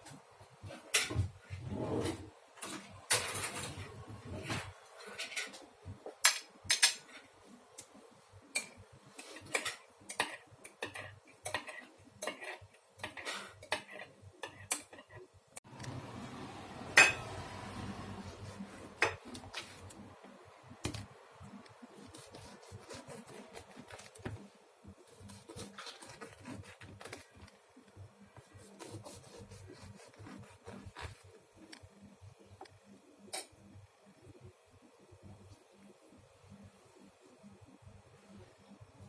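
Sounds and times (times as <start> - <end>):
dishes clinking: 17.0 - 17.3.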